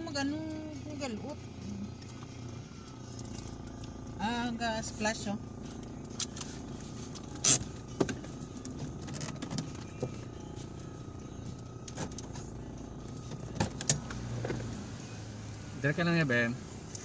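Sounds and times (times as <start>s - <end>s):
vehicle on wet road: 11.9s - 17.0s.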